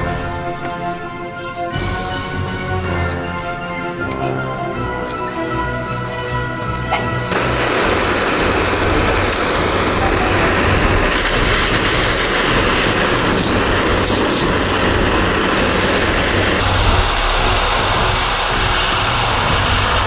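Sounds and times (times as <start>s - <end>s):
motor hum: 4.7s - 20.0s
power tool grinding metal: 5.3s - 20.0s.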